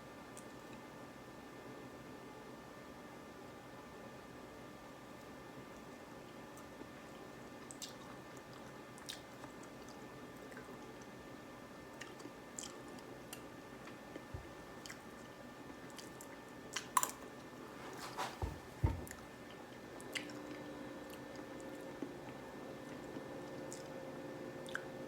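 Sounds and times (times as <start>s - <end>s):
person chewing oatmeal: 11.9s - 14.2s, 14.8s - 15.3s, 15.9s - 18.4s.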